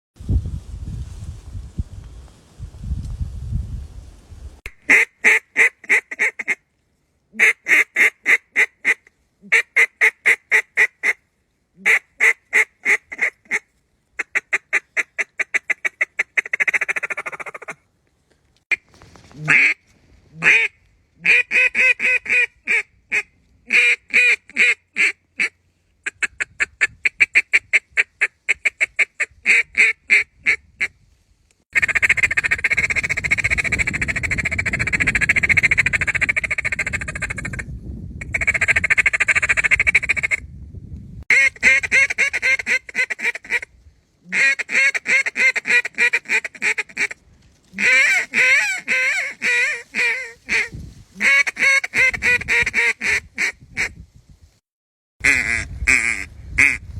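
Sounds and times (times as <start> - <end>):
geese honking: 47.8 - 53.3
ducks quacking: 47.8 - 53.9.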